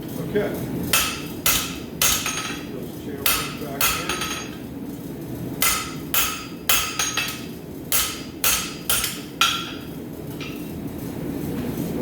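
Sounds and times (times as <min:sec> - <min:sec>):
hammer striking steel on anvil: 0:00.9 - 0:04.6, 0:05.6 - 0:10.6.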